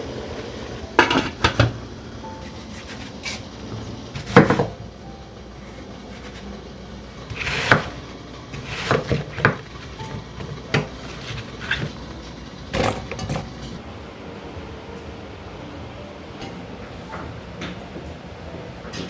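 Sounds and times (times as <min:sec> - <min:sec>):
kitchenware knocking and clattering: 0:01.0 - 0:01.8, 0:07.2 - 0:12.0, 0:12.7 - 0:13.8.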